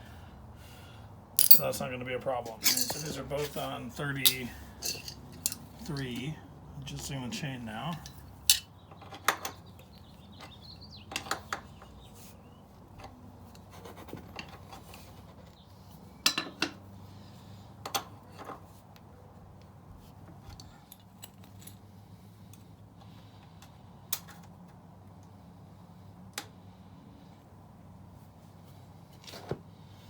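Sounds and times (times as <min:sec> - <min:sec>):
metal tools clinking: 0:01.4 - 0:01.8, 0:02.6 - 0:06.3, 0:07.9 - 0:08.7.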